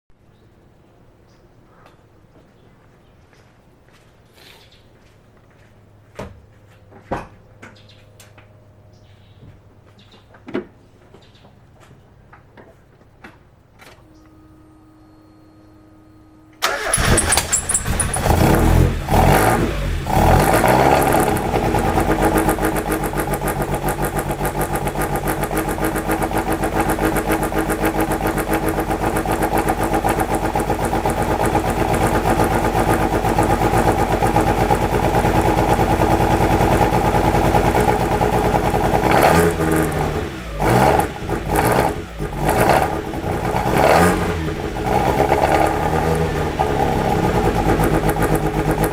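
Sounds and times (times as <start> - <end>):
car engine starting and idling roughly: 16.6 - 48.9.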